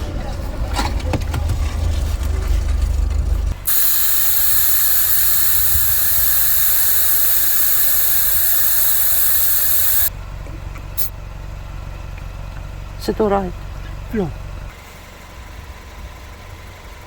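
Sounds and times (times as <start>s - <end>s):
loud steady hiss: 3.6s - 10.1s.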